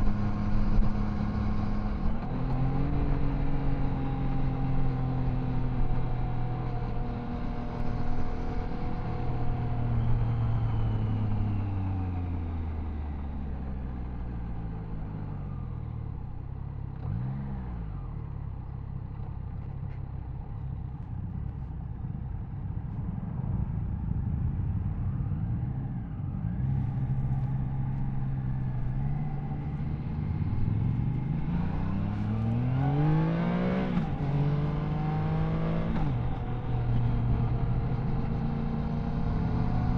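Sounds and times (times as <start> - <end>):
motorcycle engine revving: 26.6 - 39.9.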